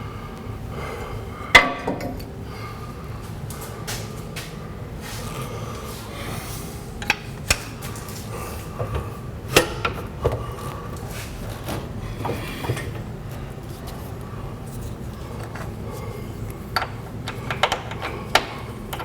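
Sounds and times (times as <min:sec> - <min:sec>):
metal hardware clanking: 0:01.5 - 0:02.4.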